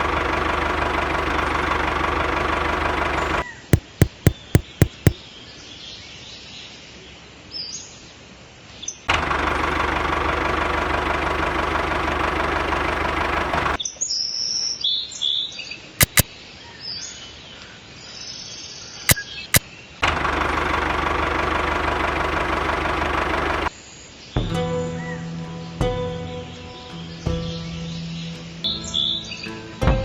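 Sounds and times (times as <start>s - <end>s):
engine running loudly: 0.0s - 3.4s, 9.2s - 13.8s, 20.0s - 23.7s
birds chirping: 2.9s - 5.4s
sharp clicks: 3.8s - 5.2s, 16.0s - 16.3s.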